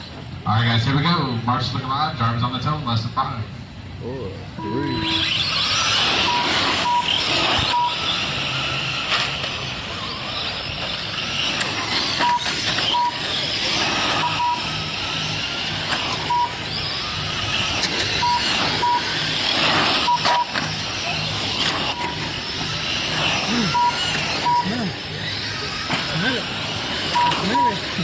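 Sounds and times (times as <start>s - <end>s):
radio-controlled cars whining: 0.0s - 28.0s
short high beeps: 4.6s - 5.2s, 6.2s - 8.0s, 12.2s - 13.2s, 14.0s - 14.8s, 16.2s - 16.6s, 18.2s - 20.7s, 21.7s - 22.3s, 23.3s - 24.8s, 27.1s - 27.8s.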